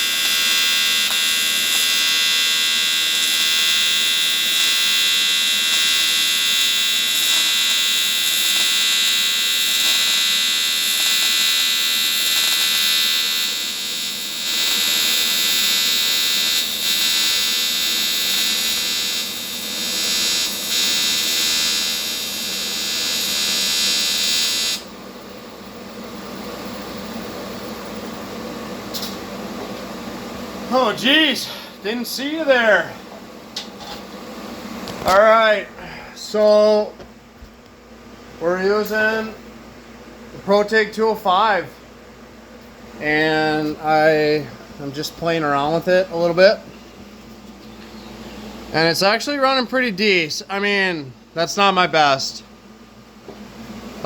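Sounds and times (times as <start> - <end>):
welding arc buzzing: 0.0 - 29.2, 30.7 - 32.9, 34.7 - 35.6.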